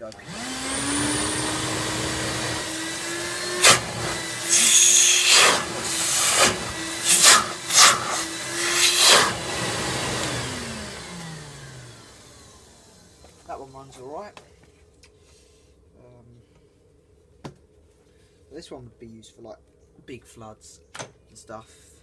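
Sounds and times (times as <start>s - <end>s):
wet vacuum motor whining: 0.0s - 13.4s.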